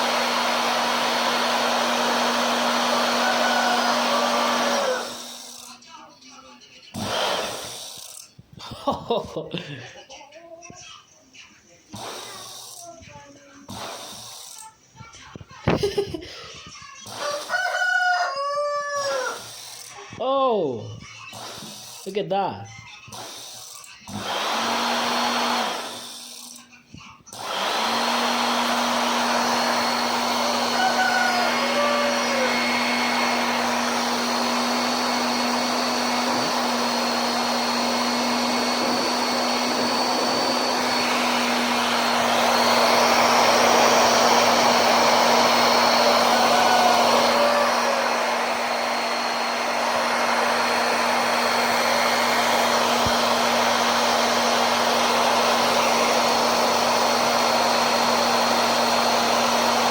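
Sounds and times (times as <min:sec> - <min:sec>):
electric fan motor whining: 0:00.0 - 0:05.8, 0:24.1 - 0:26.6, 0:27.3 - 0:59.9.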